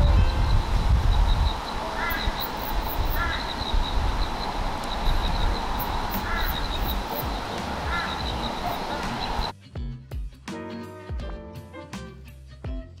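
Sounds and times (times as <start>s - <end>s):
bird calling: 0.0s - 9.5s
steady low rumble: 0.0s - 9.5s.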